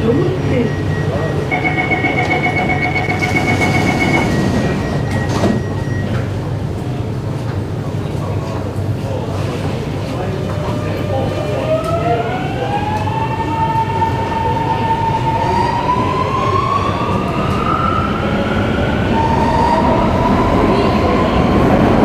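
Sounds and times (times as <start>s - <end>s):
train wheels rumbling: 0.3s - 22.0s.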